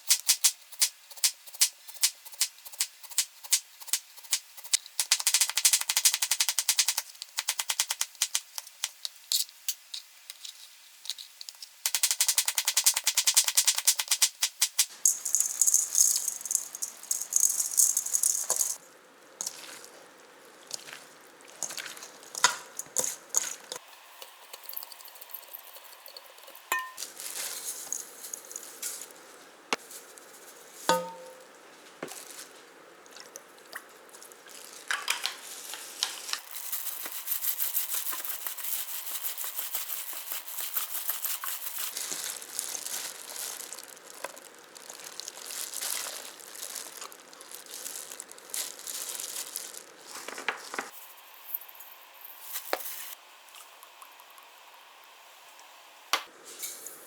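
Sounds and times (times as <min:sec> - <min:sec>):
utensils and packaging clicking: 0:00.0 - 0:18.8, 0:34.9 - 0:51.0
food sizzling in a pan: 0:14.9 - 0:28.9, 0:34.6 - 0:50.0.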